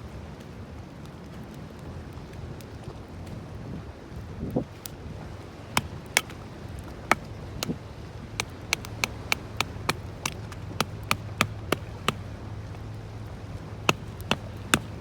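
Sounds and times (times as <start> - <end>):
wood fire crackling: 4.6 - 15.0.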